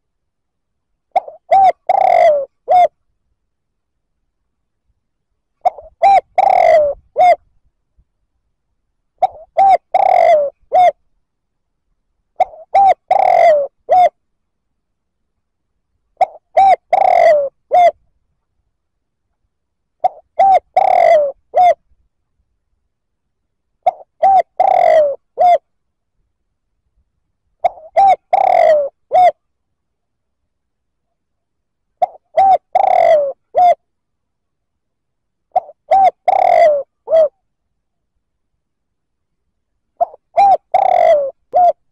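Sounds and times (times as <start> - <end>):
dove cooing: 1.1 - 2.9, 5.6 - 7.4, 9.2 - 11.0, 12.4 - 14.2, 16.2 - 18.0, 20.0 - 21.8, 23.8 - 25.6, 27.6 - 29.4, 32.0 - 33.8, 35.5 - 37.4, 40.0 - 41.9.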